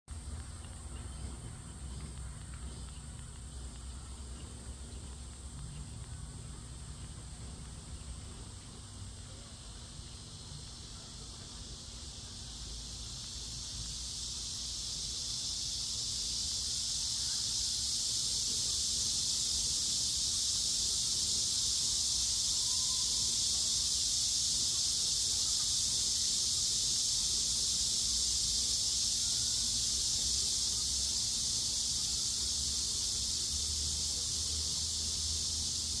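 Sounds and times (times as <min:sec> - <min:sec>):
faint low hum: 0:00.1 - 0:23.9
insects buzzing: 0:00.1 - 0:36.0.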